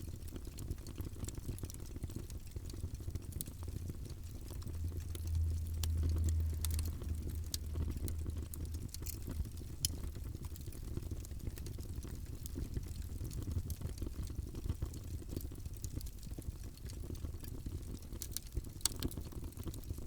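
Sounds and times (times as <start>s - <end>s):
wood fire crackling: 0.0s - 20.0s
low rumble: 4.5s - 9.4s.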